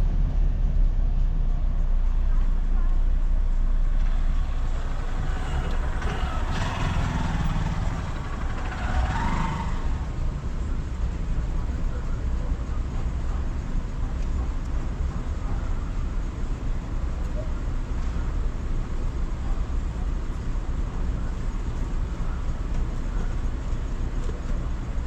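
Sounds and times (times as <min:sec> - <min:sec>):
car engine and tyres rumble: 0:00.0 - 0:25.0
vehicle passing: 0:03.6 - 0:11.7.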